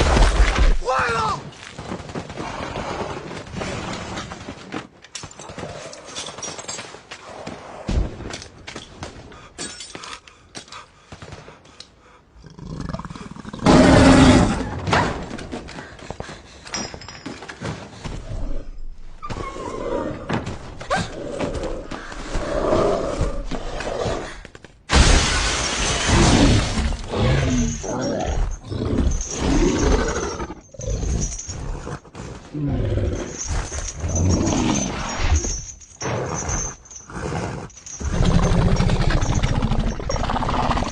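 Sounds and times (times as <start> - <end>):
animal growls: 12.4 - 14.7, 19.3 - 24.5, 26.0 - 40.9
loud crashes of something breaking: 24.9 - 26.9.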